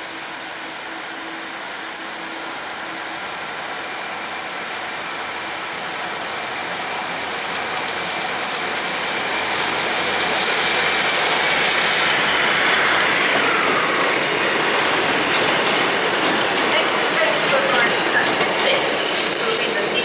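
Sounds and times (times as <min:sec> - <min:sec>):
train running: 0:00.0 - 0:20.0
high whines falling in pitch: 0:10.5 - 0:15.1.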